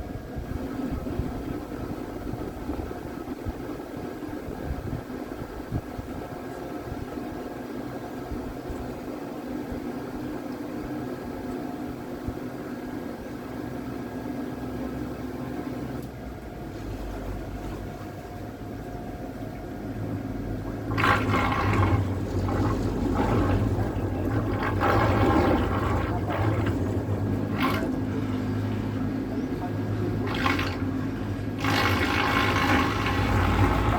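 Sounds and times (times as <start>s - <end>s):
faint hum: 0.0s - 33.9s
water splashing against hull: 20.7s - 33.9s.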